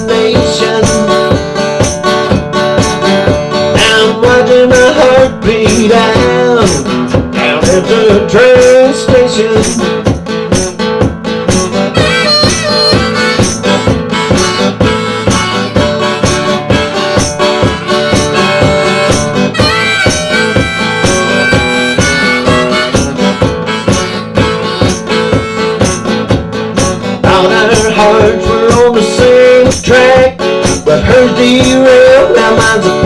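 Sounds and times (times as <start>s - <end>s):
guitar: 0.0s - 33.0s
steady drum beat: 0.0s - 33.0s
harmonica solo: 11.7s - 27.0s.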